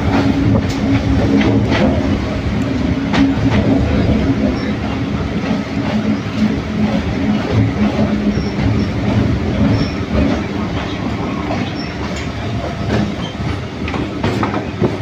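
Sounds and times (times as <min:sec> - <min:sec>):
train rumble heard on board: 0:00.0 - 0:15.0
wheels clattering over rails: 0:00.0 - 0:15.0
high wheel squeaks: 0:08.1 - 0:13.5.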